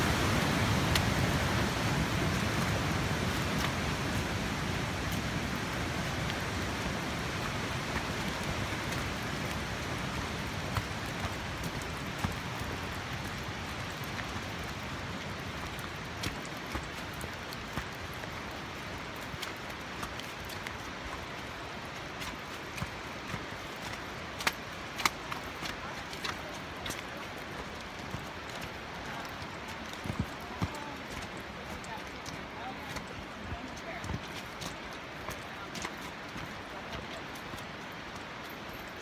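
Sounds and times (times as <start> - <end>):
rain hissing: 0.0 - 39.0
raindrop taps: 0.8 - 1.2, 10.5 - 21.4, 22.1 - 38.3.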